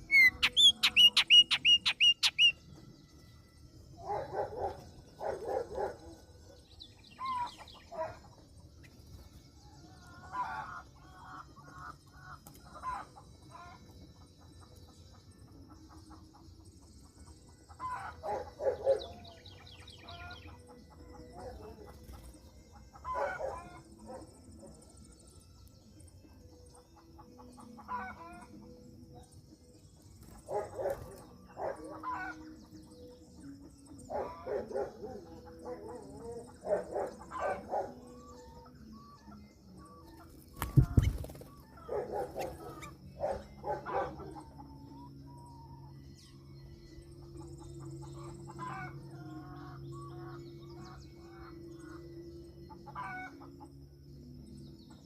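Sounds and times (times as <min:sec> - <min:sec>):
bird calls: 0:00.0 - 0:02.6, 0:07.0 - 0:09.0, 0:30.3 - 0:53.6.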